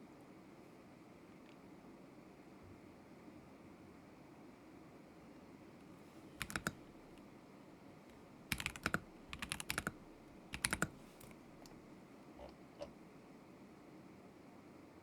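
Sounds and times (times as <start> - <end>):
mechanical keyboard typing: 6.4 - 7.2, 8.5 - 11.8.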